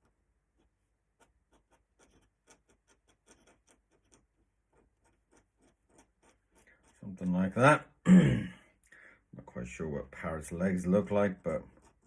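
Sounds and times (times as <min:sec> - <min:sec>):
pen scratching on paper: 0:00.5 - 0:07.6, 0:11.7 - 0:12.0.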